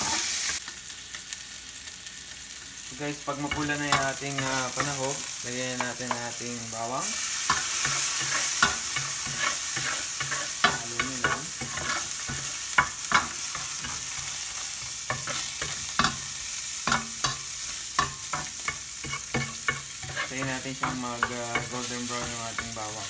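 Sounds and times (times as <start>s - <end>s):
food sizzling in hot oil: 0.0s - 23.0s
spatula scraping and tapping pot: 7.5s - 14.0s, 18.0s - 22.8s.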